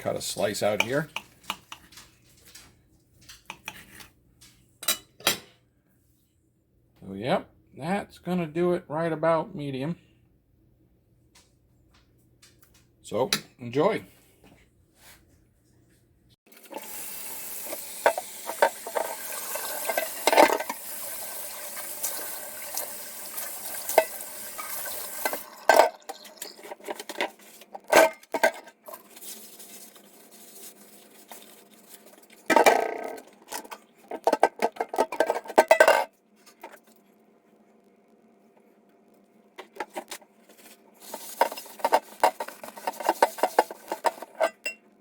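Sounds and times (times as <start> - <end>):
cutlery clinking and scraping: 0.4 - 4.1, 4.8 - 5.6, 18.0 - 20.8, 23.8 - 29.4, 41.0 - 44.8
steady sizzle: 16.5 - 26.8.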